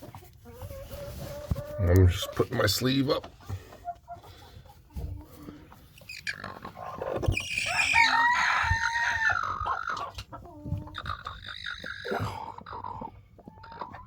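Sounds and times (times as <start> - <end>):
chicken calling: 5.2 - 14.0.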